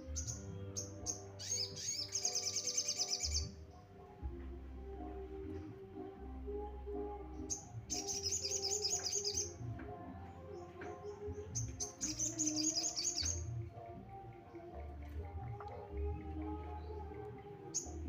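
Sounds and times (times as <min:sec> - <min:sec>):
bird chirping: 0:00.0 - 0:04.1, 0:07.2 - 0:14.1, 0:15.4 - 0:18.0
background music: 0:00.0 - 0:18.0.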